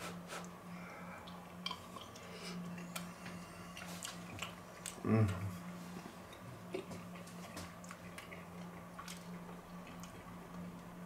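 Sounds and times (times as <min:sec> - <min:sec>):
steady low hum: 0:00.0 - 0:11.0
chewing and wet mouth smacks: 0:01.2 - 0:05.5, 0:06.3 - 0:10.6.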